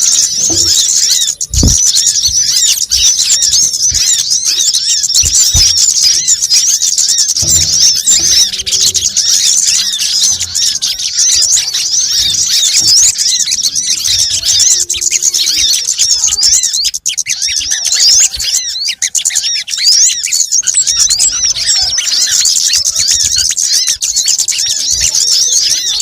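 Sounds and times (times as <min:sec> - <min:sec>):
birds chirping in chorus: 0:00.0 - 0:26.0
soft low thumps: 0:00.3 - 0:04.3.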